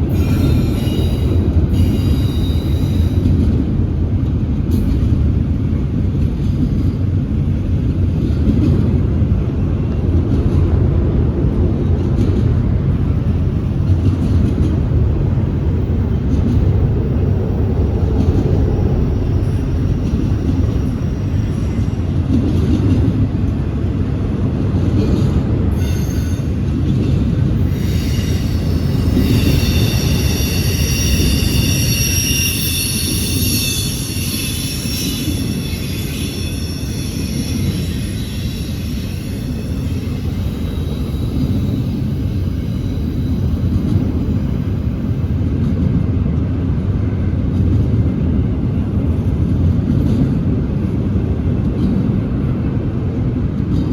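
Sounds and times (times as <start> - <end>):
train wheels squealing: 0.0 - 3.6, 17.7 - 23.2, 25.0 - 45.6
freight train wheels rumbling: 0.0 - 53.9.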